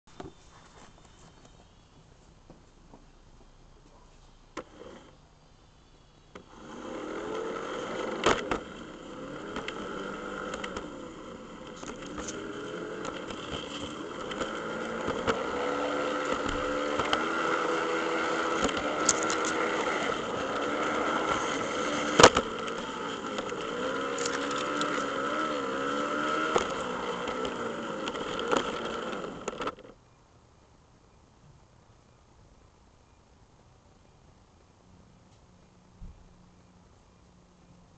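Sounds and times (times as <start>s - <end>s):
model train motor whine: 4.6s - 5.2s, 6.3s - 29.9s
wheels clicking on track: 6.3s - 30.0s.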